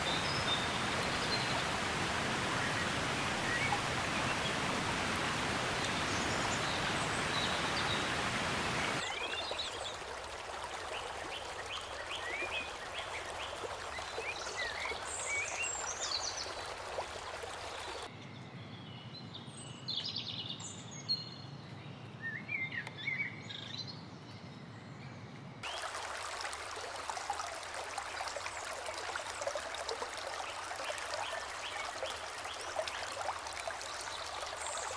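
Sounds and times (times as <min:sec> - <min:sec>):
small birds chirping: 0:00.0 - 0:09.9
running water rushing: 0:00.0 - 0:18.1, 0:25.6 - 0:34.9.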